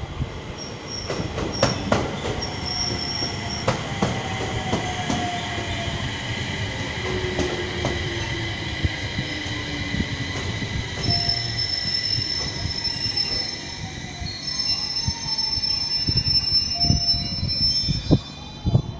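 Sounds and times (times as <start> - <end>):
train running rumble: 0.0 - 18.9
train wheels squealing: 0.6 - 5.9, 9.2 - 18.9.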